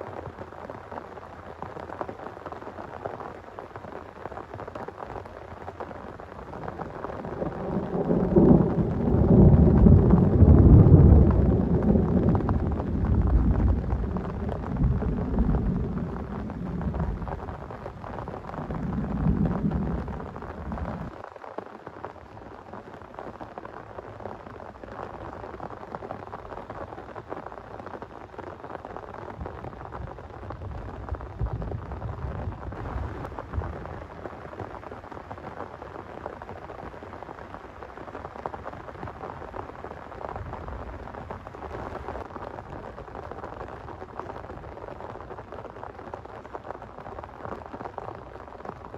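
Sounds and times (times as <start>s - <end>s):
heavy rain: 0.0s - 48.9s
thunder rumbling: 5.9s - 21.2s, 29.2s - 34.8s.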